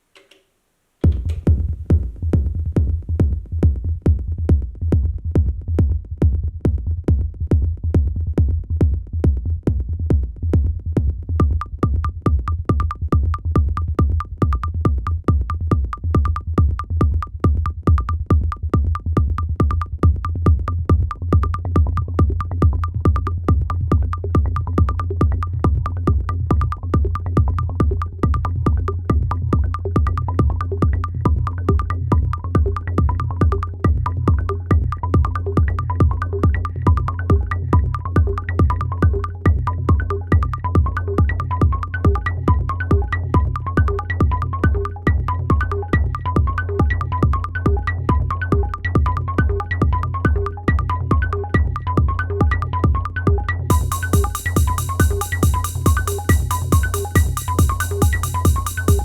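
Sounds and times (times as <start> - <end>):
heavy bass beat: 1.0 - 59.0
repeating high synth note: 53.7 - 59.0.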